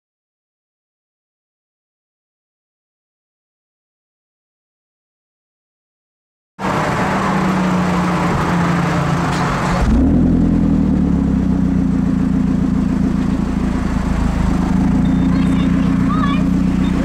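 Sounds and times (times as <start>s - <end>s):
car engine running: 6.6s - 17.0s
deep exhaust drone: 6.6s - 17.0s.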